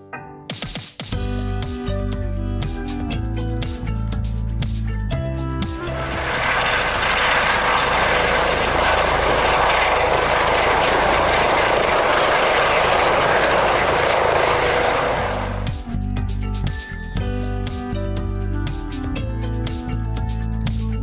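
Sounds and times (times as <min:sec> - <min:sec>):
aircraft engine rushing noise: 0:05.8 - 0:15.8
faint hum: 0:05.9 - 0:15.7.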